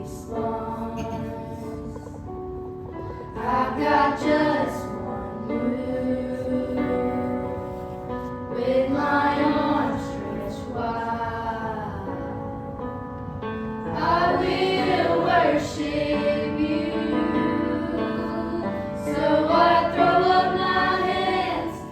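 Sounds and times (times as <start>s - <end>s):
youth choir singing: 0.0s - 2.0s, 3.3s - 7.7s, 8.6s - 12.4s, 13.9s - 21.9s.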